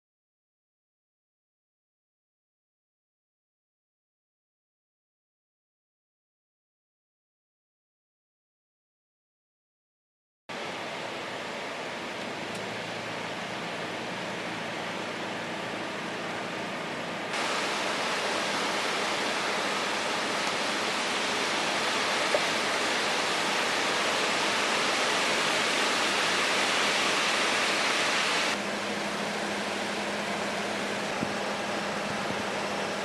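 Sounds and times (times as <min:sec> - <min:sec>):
river rushing: 0:12.9 - 0:33.0.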